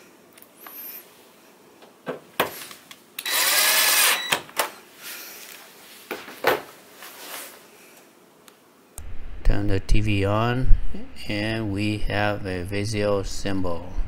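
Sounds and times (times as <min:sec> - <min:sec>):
power drill driving a screw: 0:03.2 - 0:04.4.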